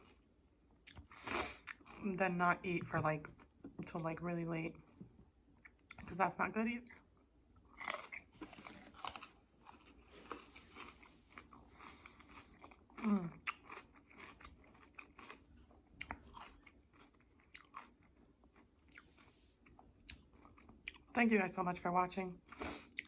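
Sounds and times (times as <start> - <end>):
close chewing mouth sounds: 7.7 - 21.2, 22.4 - 23.0.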